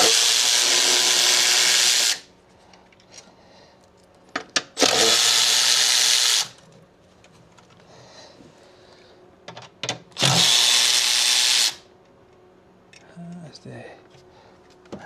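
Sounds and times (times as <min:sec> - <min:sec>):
power tool running: 0:00.0 - 0:02.3, 0:04.8 - 0:06.6, 0:10.2 - 0:11.9.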